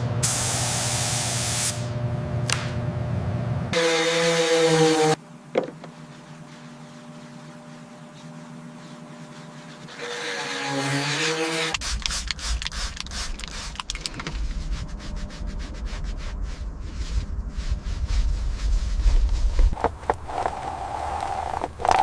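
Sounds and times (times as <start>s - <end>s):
rubbing and scraping strokes: 5.8s - 22.0s
steady low rumble: 11.8s - 22.0s.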